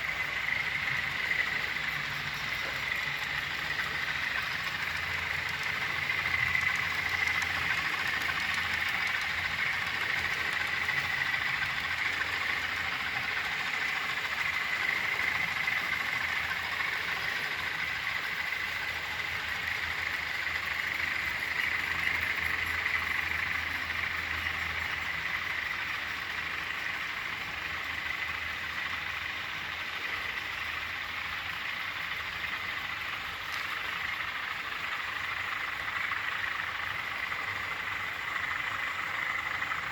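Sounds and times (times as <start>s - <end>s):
diesel locomotive engine hum: 0.0s - 39.9s.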